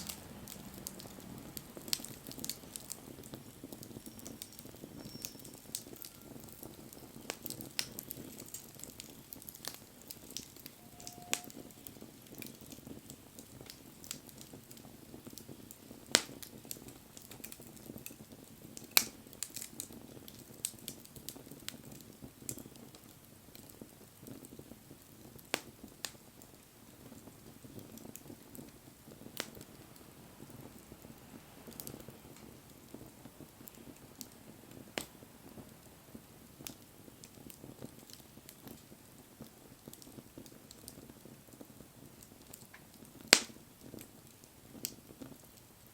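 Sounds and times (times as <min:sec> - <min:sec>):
bonfire crackling and popping: 0:00.0 - 0:45.9
rush of flames: 0:00.0 - 0:45.9.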